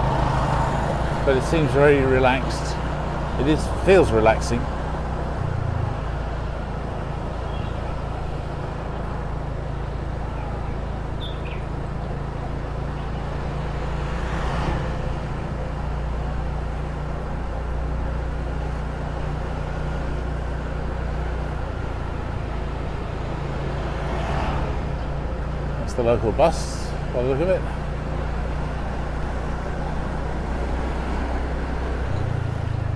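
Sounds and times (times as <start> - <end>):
motor scooter engine running: 0.0 - 13.7
road noise: 0.0 - 32.9.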